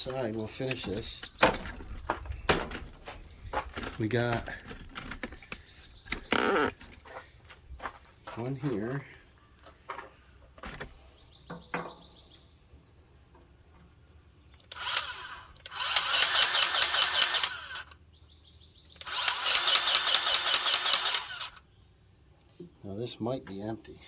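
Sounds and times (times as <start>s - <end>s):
grease gun motor pumping: 14.6s - 18.0s, 19.0s - 21.6s.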